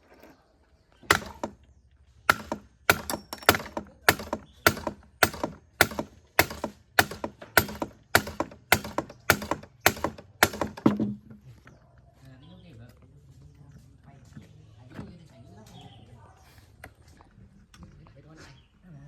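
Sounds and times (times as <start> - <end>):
sharp hard knocks: 1.0 - 1.6, 2.3 - 11.2.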